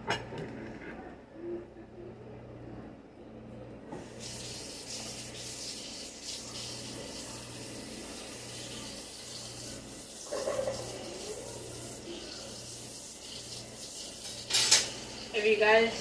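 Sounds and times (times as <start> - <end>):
water running into sink: 4.0 - 16.0.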